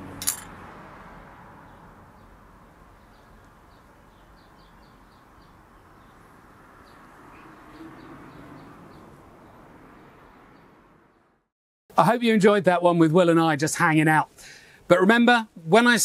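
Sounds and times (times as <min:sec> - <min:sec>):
small birds chirping: 0:01.6 - 0:09.7.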